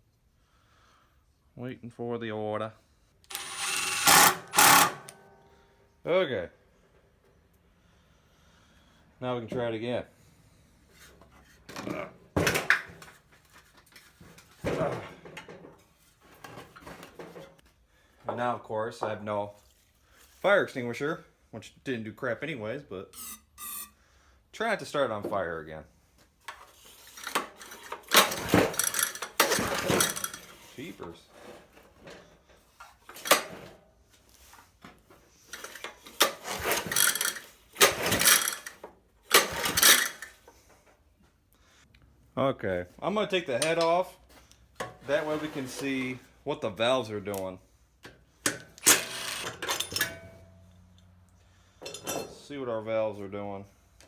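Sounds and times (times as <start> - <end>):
recoil starter pulls on small engine: 36.2 - 38.7.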